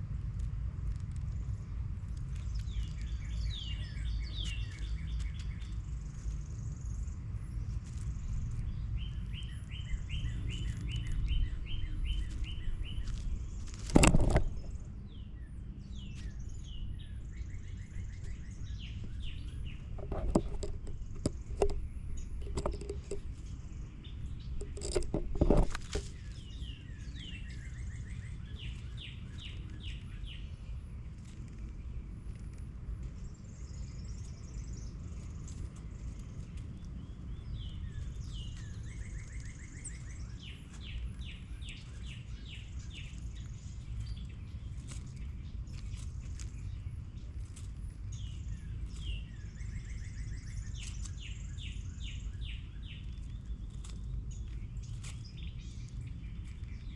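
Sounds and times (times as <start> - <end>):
songbirds chirping: 0.0 - 56.9
steady low rumble: 0.0 - 56.9
loud bump or rustle: 13.6 - 14.8, 24.6 - 26.3
small knocks: 19.8 - 23.4, 24.6 - 26.2.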